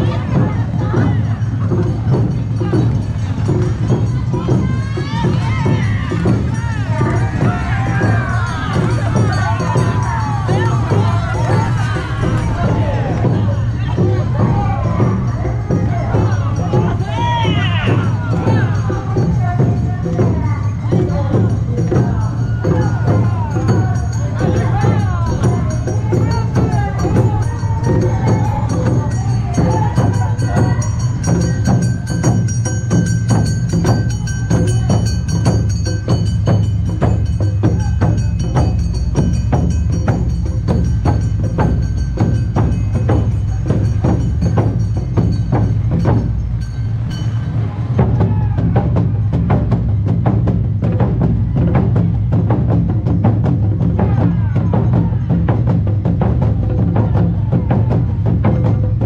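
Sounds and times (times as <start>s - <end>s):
festival drums: 0.0s - 59.0s
held ringing tones: 1.2s - 48.2s.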